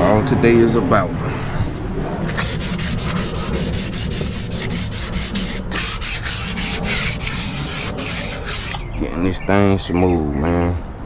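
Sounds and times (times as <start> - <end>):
sandpaper rubbing on a hull: 2.2 - 8.8.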